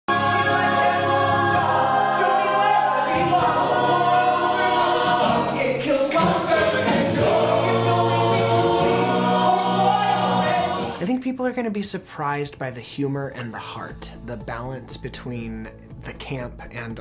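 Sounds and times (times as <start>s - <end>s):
choir singing sustained chords: 0.1s - 11.0s
musical accompaniment: 0.1s - 17.0s.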